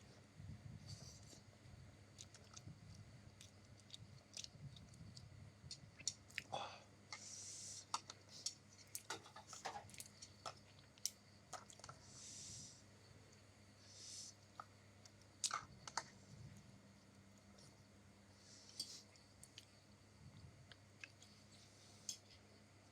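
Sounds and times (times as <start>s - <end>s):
person chewing noodles: 2.1s - 6.5s
airy breathing sounds: 6.5s - 8.4s, 12.0s - 12.8s, 13.8s - 14.4s.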